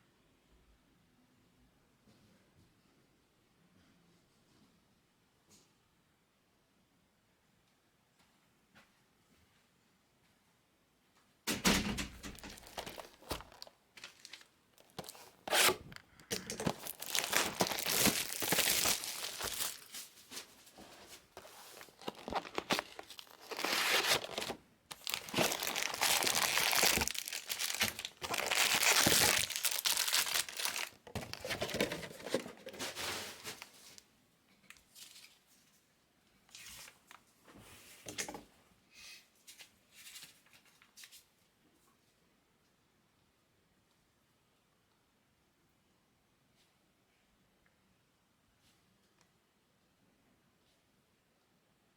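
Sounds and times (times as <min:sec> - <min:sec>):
foil wrappers tearing and crinkling: 0:12.4 - 0:20.1, 0:21.4 - 0:33.7.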